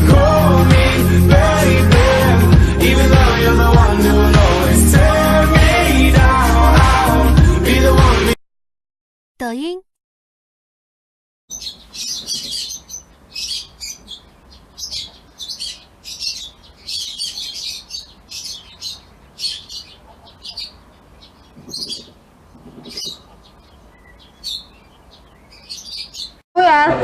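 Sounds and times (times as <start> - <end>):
bird chirping: 11.5 - 26.4.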